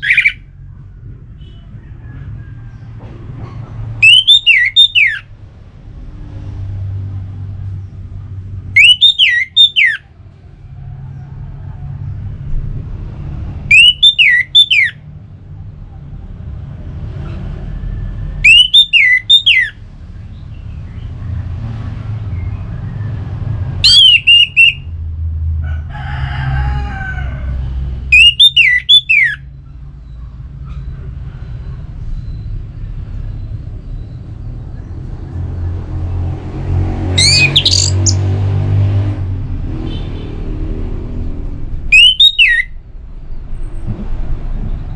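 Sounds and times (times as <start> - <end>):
thrush singing whistled notes: 0.0 - 0.5, 4.0 - 5.3, 8.7 - 10.1, 13.7 - 15.0, 18.3 - 19.8, 23.8 - 24.9, 28.1 - 30.2, 37.2 - 38.3, 41.9 - 42.8
faint lower bird call: 41.9 - 42.8.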